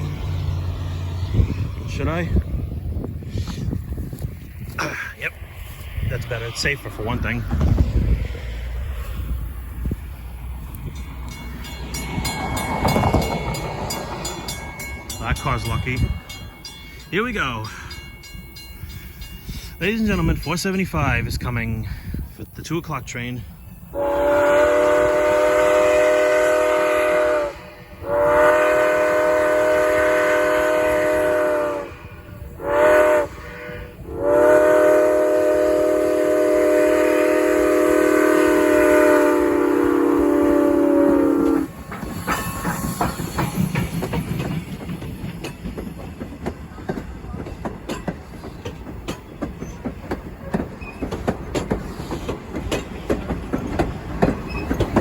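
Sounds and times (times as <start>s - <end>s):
train wheels clacking over rail joints: 9.4s - 17.1s, 41.3s - 55.0s
steam locomotive chime whistle: 23.6s - 43.8s.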